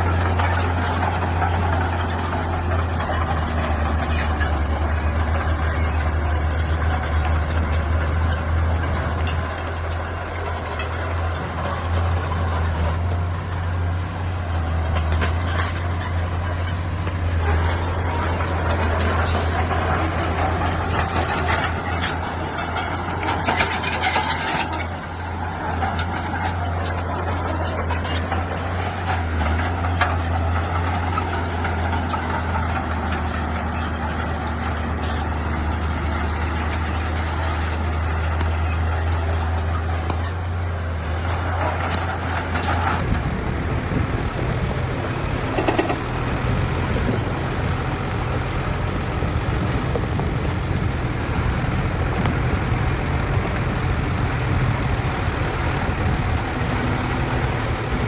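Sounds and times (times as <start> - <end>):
bulldozer diesel engine droning: 0.0 - 58.0.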